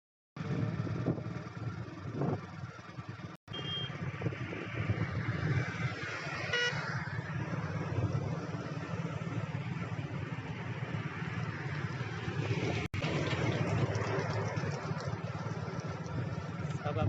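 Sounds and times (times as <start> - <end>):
highway traffic rumble: 0.4 - 17.0
wind: 0.4 - 17.0
high-pitched horn toot: 3.5 - 4.0, 6.5 - 6.8.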